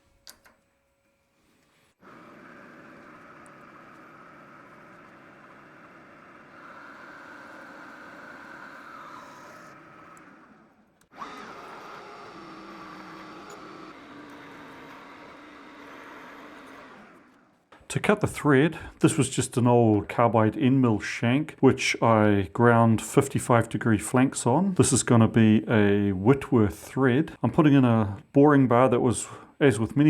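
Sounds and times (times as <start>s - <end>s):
metal lathe cutting steel: 2.0s - 17.6s.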